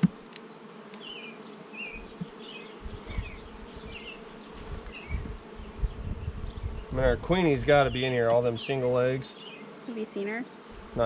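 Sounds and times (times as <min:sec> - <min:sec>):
honey bees buzzing: 0:00.0 - 0:11.0.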